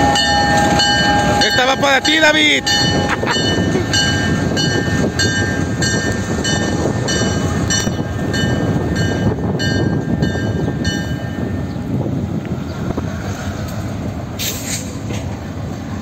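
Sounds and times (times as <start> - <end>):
locomotive bell ringing: 0.0 - 11.8
locomotive engine rumble: 0.0 - 16.0.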